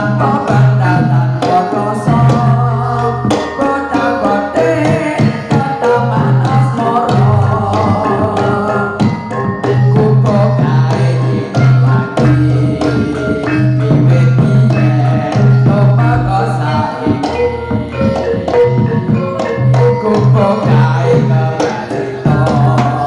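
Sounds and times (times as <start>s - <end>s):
gamelan-style melody: 0.0s - 23.0s
held low tone: 9.9s - 21.6s.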